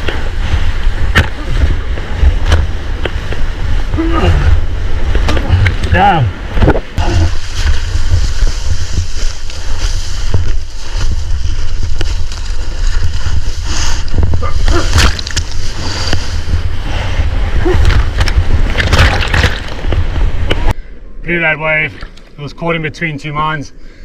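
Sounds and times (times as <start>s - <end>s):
low microphone rumble: 0.0s - 21.2s
seawater splashing and sloshing: 17.6s - 20.3s.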